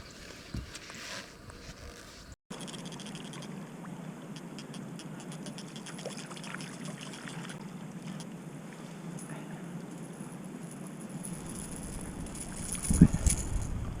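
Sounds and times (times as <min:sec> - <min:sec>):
water splashing: 0:05.2 - 0:08.2.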